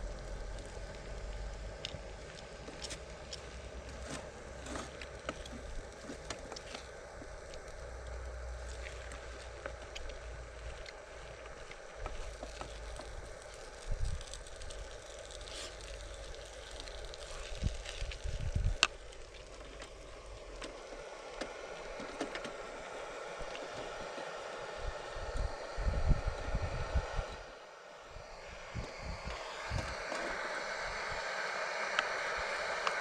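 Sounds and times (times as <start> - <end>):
steady hiss: 0.0 - 33.0
wind buffeting microphone: 17.5 - 18.8, 25.4 - 27.4, 28.2 - 31.2.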